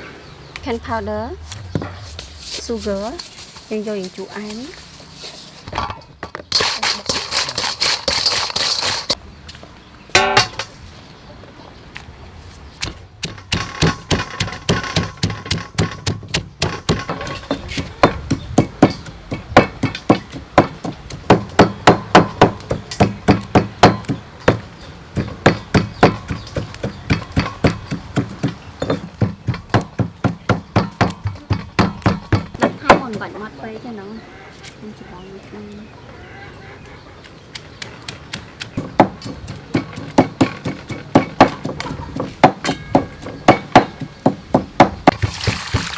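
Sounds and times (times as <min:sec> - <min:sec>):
kitchen utensil knocking: 0:10.2 - 0:10.7, 0:13.2 - 0:33.3, 0:38.8 - 0:45.4.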